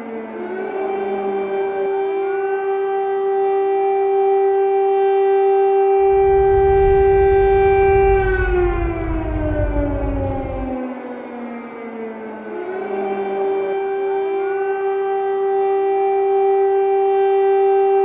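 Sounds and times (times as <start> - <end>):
air-raid siren wailing: 0.0 - 18.0
low rumble: 6.0 - 11.2.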